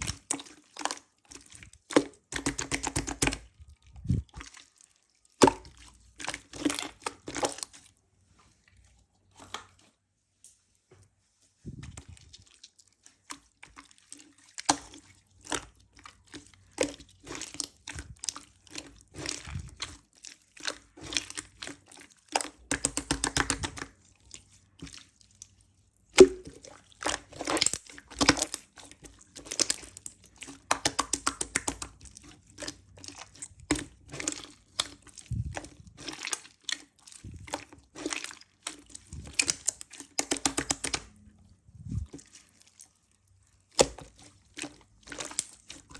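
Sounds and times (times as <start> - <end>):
sticky mass squished by hand: 13.2 - 25.4, 26.0 - 42.8.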